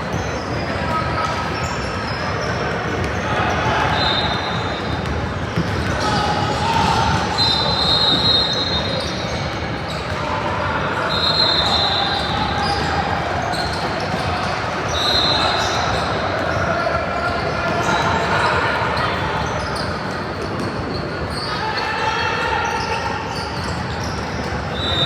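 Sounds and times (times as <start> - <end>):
crowd chatter: 0.0 - 25.0
basketball bouncing on court: 2.4 - 10.5.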